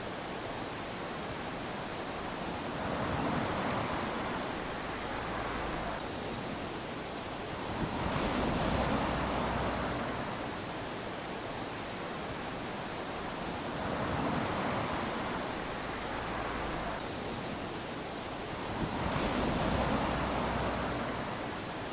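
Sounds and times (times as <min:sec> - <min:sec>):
waves lapping on sandy beach: 0:00.0 - 0:21.9.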